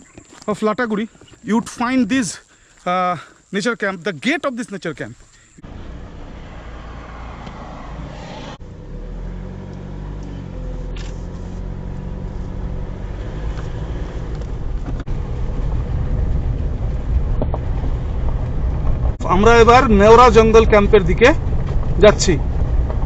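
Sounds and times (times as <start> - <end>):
road noise: 0.0 - 23.0
car engine drone: 5.3 - 23.0.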